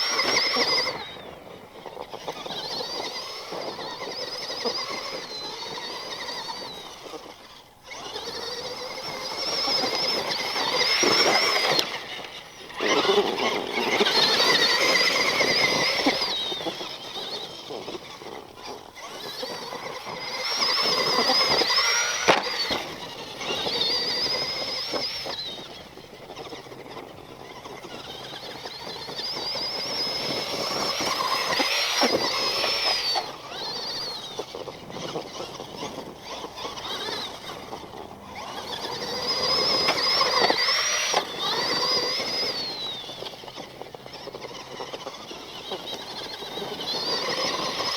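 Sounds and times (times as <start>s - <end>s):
electric motor whining: 0.0s - 47.9s
tyres rolling on ground: 0.0s - 47.9s.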